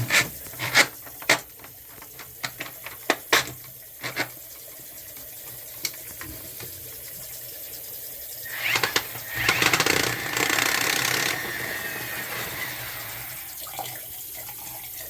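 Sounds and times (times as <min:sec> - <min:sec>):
faucet running into sink: 0:00.1 - 0:15.0.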